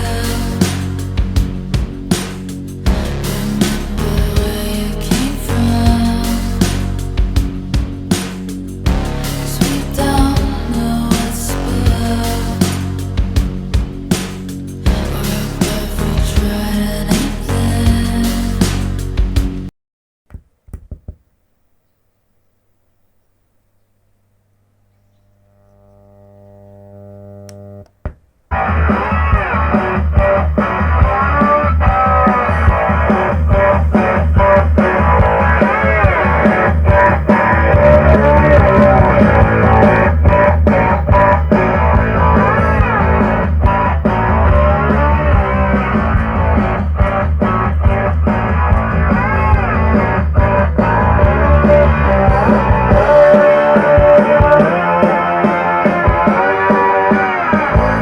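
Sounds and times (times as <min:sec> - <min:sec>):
rock music with heavy bass: 0:00.0 - 0:19.7, 0:28.5 - 0:58.0
low hum: 0:22.4 - 0:27.9.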